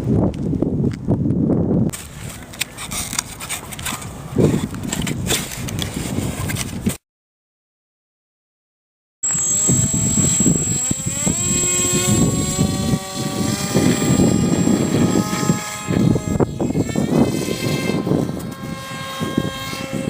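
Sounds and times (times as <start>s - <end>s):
model plane motor whining: 9.2s - 20.0s.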